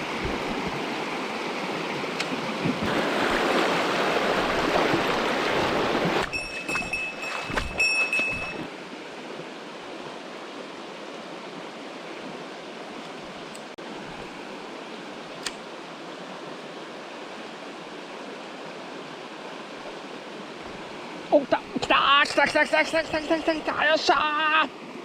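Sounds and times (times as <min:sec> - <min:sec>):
mountain stream rushing: 0:00.0 - 0:25.0.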